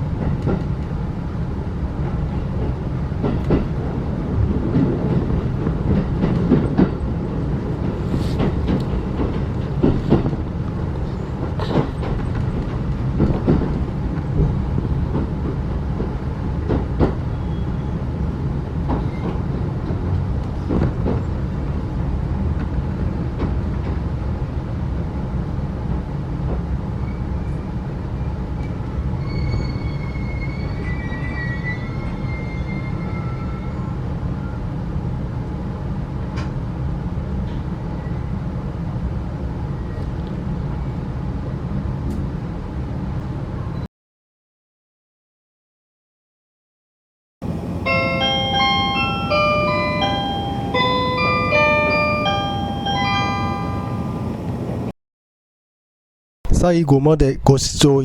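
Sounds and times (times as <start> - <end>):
train coach low rumble: 0.0 - 43.9, 47.4 - 54.9
high wavering wheel squeal: 29.1 - 34.0.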